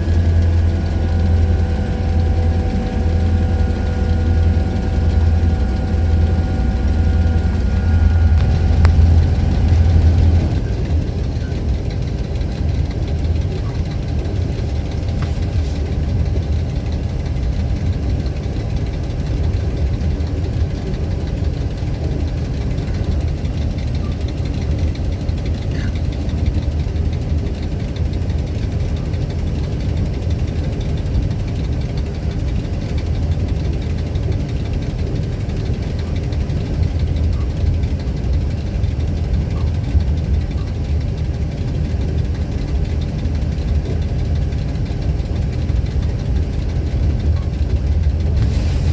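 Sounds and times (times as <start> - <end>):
locomotive diesel engine throbbing: 0.0 - 48.9.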